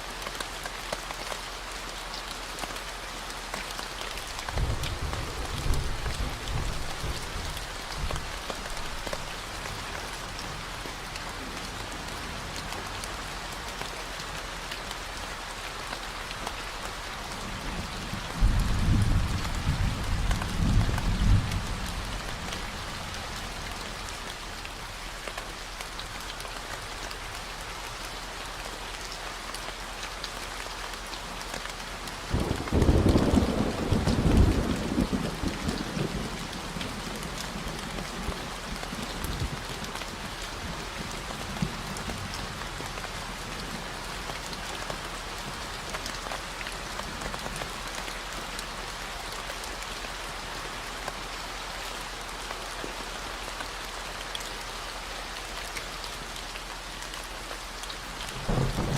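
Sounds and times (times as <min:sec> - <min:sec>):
rain falling: 0:00.0 - 0:58.9
thunder rumbling: 0:04.6 - 0:09.0, 0:17.4 - 0:23.2, 0:58.2 - 0:58.9.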